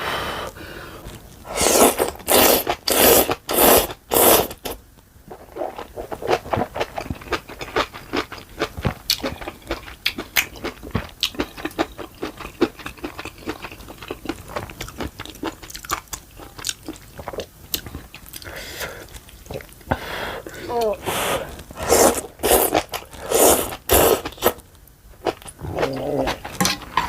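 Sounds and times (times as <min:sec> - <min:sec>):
chewing food: 0:05.3 - 0:19.9.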